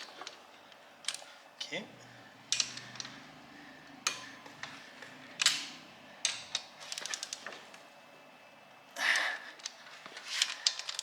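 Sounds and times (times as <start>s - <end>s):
faint low hum: 0.0s - 11.0s
metallic clicks and cracks of bolts: 2.4s - 3.2s, 5.3s - 7.6s.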